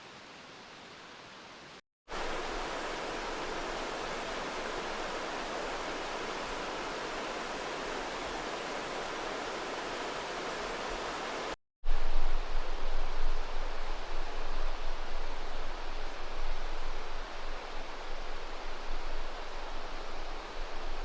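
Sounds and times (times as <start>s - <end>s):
river rushing: 2.1s - 11.6s.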